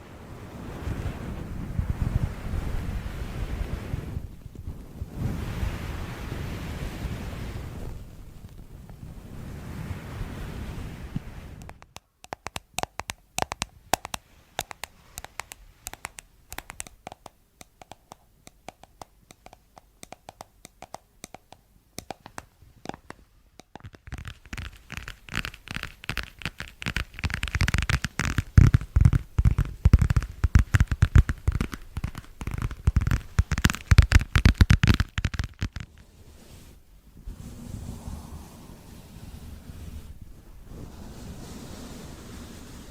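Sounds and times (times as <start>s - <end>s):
soft hiss: 0.0s - 42.9s
crackling and scratching clicks: 7.5s - 9.1s, 11.1s - 36.8s.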